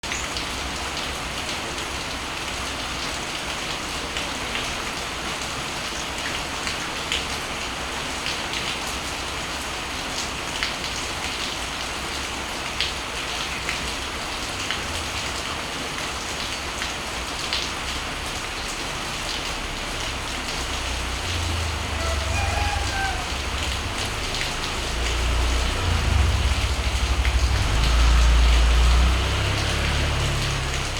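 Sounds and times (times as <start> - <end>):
steady rain: 0.0 - 30.9
raindrops tapping: 10.0 - 30.9
low rumble: 20.8 - 29.8.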